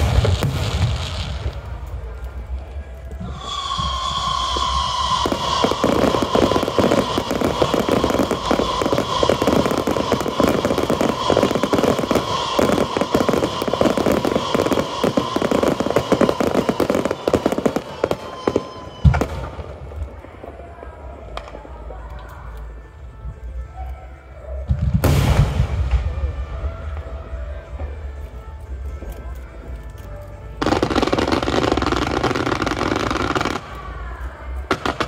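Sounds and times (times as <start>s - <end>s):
fireworks crackling and popping: 0.0s - 23.3s, 24.6s - 35.0s
loud firework bang: 24.8s - 26.3s.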